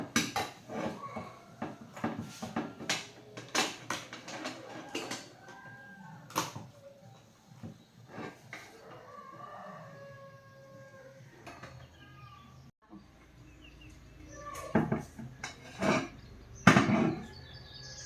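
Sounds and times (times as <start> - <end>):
hard objects clicking and knocking: 0.0 - 8.8.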